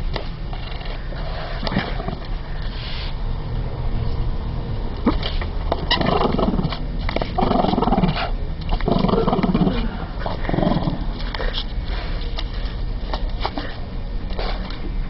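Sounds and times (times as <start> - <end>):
dog growling: 7.4 - 11.1.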